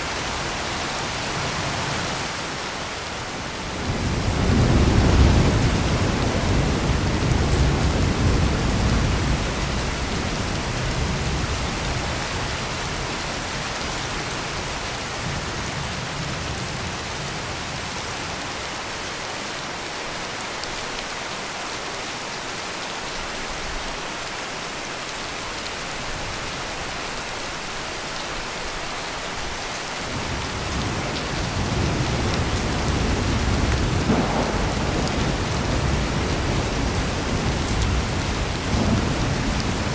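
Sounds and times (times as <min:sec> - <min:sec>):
heavy rain pouring: 0:00.0 - 0:39.9
rolling thunder: 0:03.7 - 0:13.0, 0:30.1 - 0:39.9.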